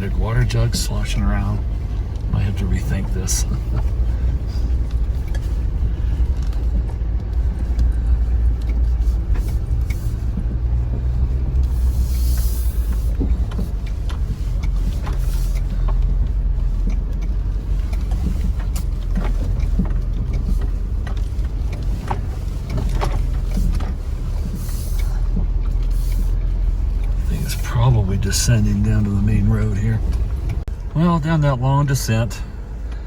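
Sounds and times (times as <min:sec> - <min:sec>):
gear shifting clicks and rattles: 0:00.0 - 0:33.0
truck engine and road rumble: 0:00.0 - 0:33.0
brief hiss: 0:11.9 - 0:13.1.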